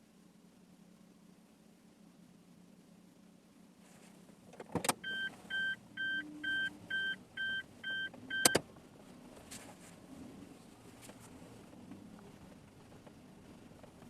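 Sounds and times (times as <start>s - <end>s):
car warning chime beeping: 5.0s - 8.6s.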